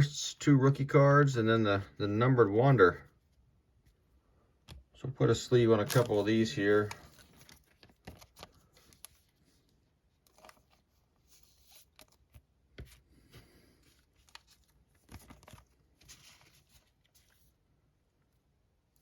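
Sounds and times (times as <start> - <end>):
trading cards rustling and clicking: 5.4 - 17.6.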